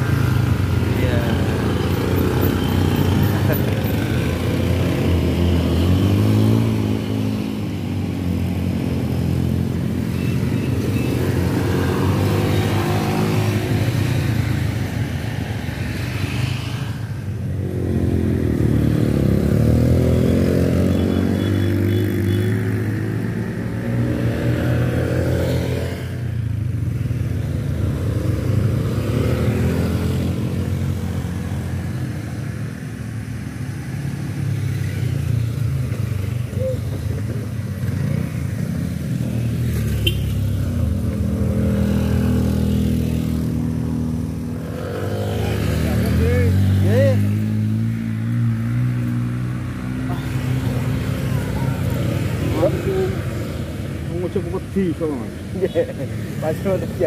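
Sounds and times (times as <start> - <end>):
motorcycle engine revving: 17.6 - 32.4, 34.6 - 57.0.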